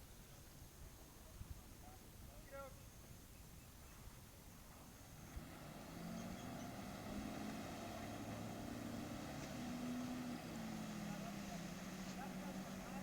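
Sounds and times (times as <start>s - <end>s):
boat motor running: 5.0s - 13.0s.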